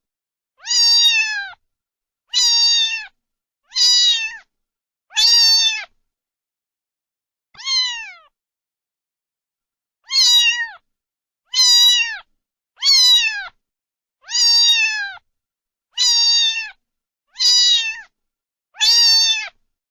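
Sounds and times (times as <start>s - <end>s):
cat meowing: 0.6s - 1.6s, 2.3s - 4.5s, 5.1s - 6.0s, 7.6s - 8.4s, 10.0s - 10.8s, 11.5s - 13.6s, 14.2s - 15.2s, 16.0s - 18.1s, 18.8s - 19.6s.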